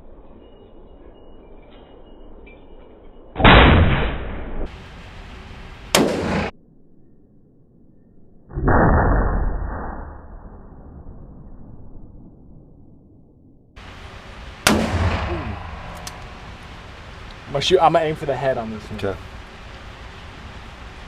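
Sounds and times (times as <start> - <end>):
sharp short gunshot crack: 5.9 - 6.5, 14.6 - 17.5
loud ringing gunshots: 13.8 - 17.7.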